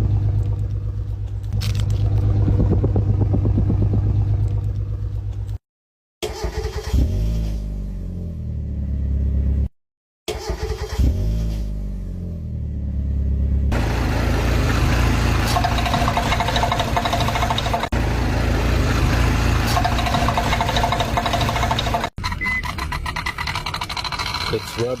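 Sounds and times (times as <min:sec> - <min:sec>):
car engine cranking and idling: 0:00.0 - 0:05.6, 0:06.2 - 0:09.7, 0:10.3 - 0:25.0
loud noisy engine running: 0:13.7 - 0:22.1.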